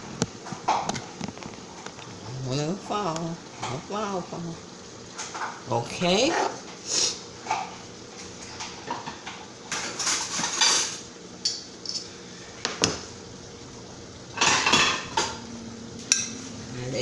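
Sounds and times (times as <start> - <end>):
pans and dishes clattering: 8.5 - 13.1, 14.3 - 16.7.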